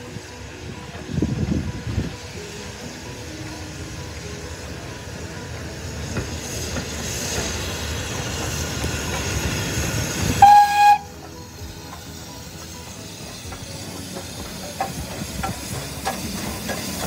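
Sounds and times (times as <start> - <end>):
steam train running: 0.0 - 17.0
steam whistle blast: 10.3 - 11.2.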